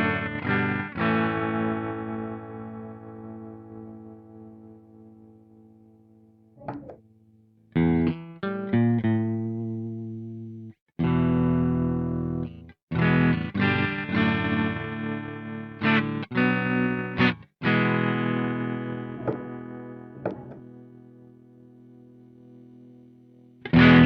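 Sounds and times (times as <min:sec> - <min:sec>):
distorted electric guitar chords: 0:13.0 - 0:22.8, 0:23.6 - 0:24.0.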